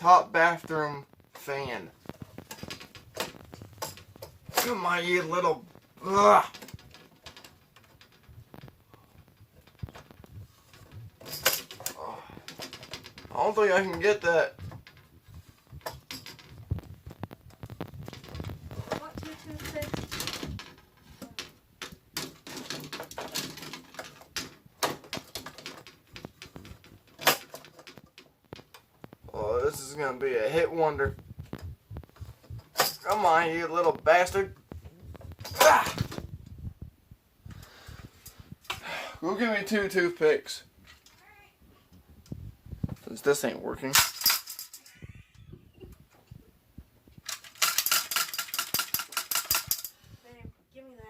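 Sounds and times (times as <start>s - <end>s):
small hard objects clinking: 47.3s - 50.0s.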